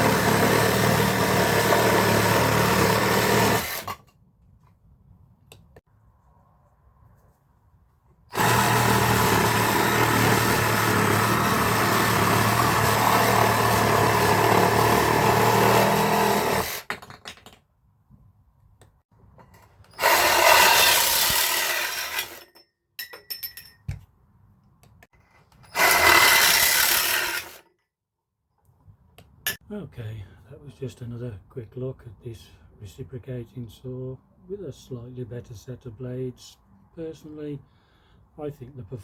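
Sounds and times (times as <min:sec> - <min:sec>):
reciprocating saw running: 0:00.0 - 0:03.9, 0:08.3 - 0:16.8, 0:20.0 - 0:22.4, 0:25.8 - 0:27.6.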